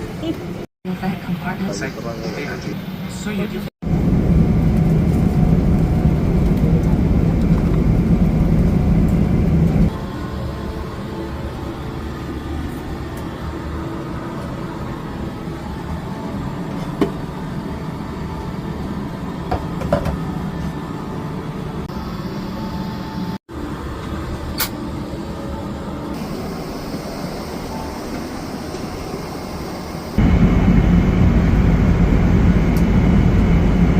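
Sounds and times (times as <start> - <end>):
airliner cabin engine rumble: 3.8 - 23.3, 26.1 - 33.9.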